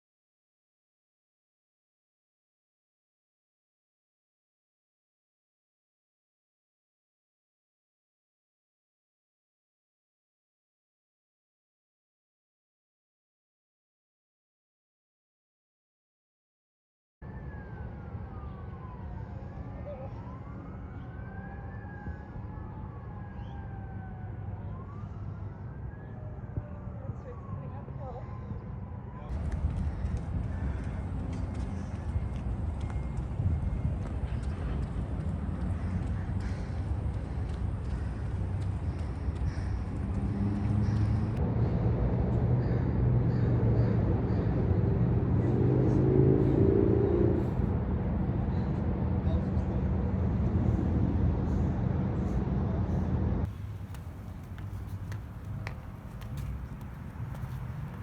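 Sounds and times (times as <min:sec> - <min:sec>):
sirens wailing: 0:17.3 - 0:29.2
low vehicle rumble: 0:29.4 - 0:58.0
vehicle engine humming: 0:50.4 - 0:58.0.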